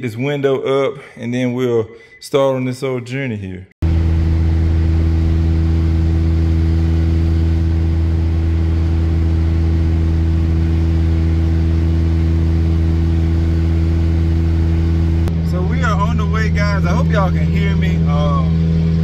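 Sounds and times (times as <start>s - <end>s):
car engine droning at cruise: 3.8s - 19.0s.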